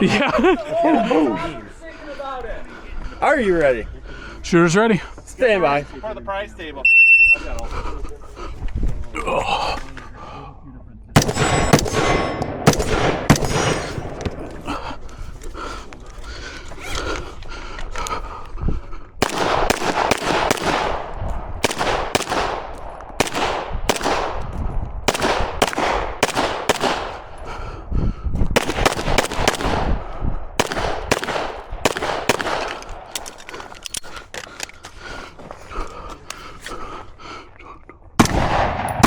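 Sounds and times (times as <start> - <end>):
gunshots with ringing echo: 11.2 - 14.7, 19.2 - 27.4, 28.6 - 33.4, 38.2 - 39.0.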